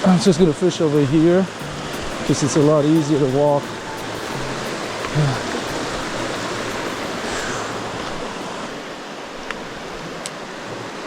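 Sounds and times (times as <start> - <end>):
flowing creek water: 0.0 - 11.0.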